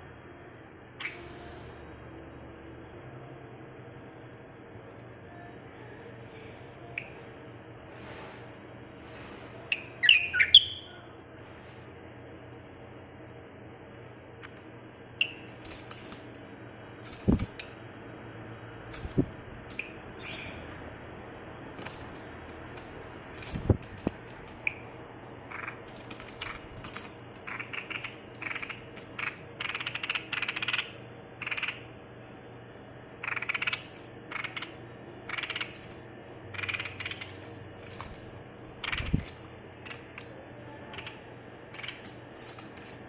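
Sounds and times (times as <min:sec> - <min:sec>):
bird giving harsh rasping calls: 0:09.7 - 0:10.9.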